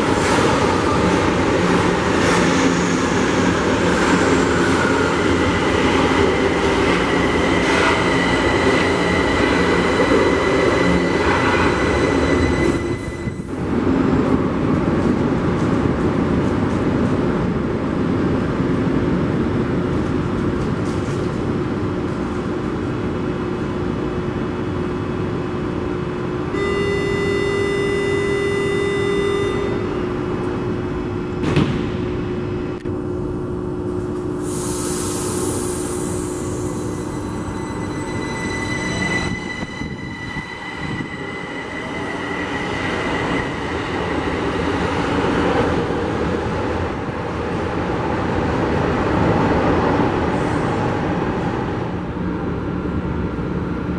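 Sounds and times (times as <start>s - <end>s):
train rumble and wheel noise: 0.0s - 53.9s
multi-tone electronic signal: 26.6s - 29.9s.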